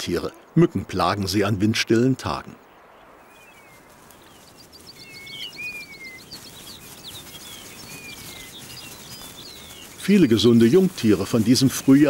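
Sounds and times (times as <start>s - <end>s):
wild birds chirping and whistling: 2.6s - 12.0s
bird rattling trill: 3.8s - 12.0s.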